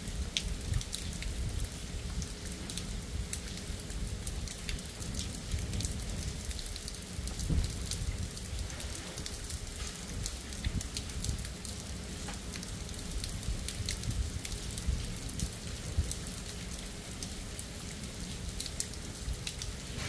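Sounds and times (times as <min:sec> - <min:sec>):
raindrops ticking: 0:00.0 - 0:20.0
steady rain hiss: 0:00.0 - 0:20.0.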